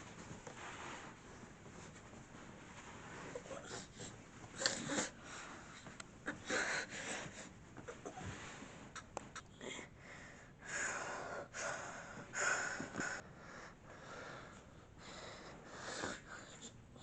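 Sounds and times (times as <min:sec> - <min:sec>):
heavy noisy breathing: 0:09.7 - 0:16.8.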